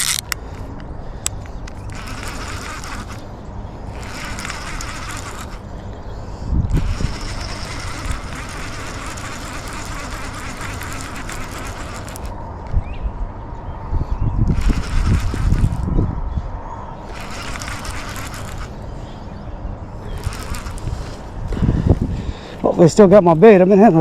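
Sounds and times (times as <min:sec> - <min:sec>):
fishing reel cranking: 0:00.0 - 0:00.4, 0:01.7 - 0:05.7, 0:06.7 - 0:12.4, 0:14.5 - 0:16.0, 0:17.0 - 0:18.8, 0:20.0 - 0:21.3
low wind rumble: 0:00.0 - 0:24.0.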